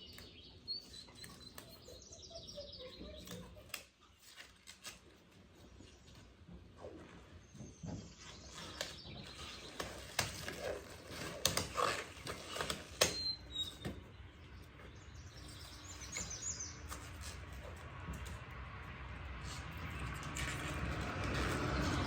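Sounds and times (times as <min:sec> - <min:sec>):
bird chirps: 0:00.0 - 0:03.8, 0:13.0 - 0:17.3
rubber coating peeling: 0:08.5 - 0:14.0.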